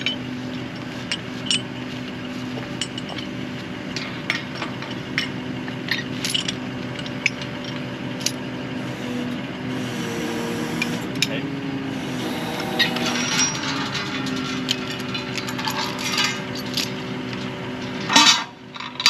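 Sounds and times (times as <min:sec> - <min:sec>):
engine running steadily: 0:00.0 - 0:19.0
sharp metallic clinks and taps: 0:04.0 - 0:08.4.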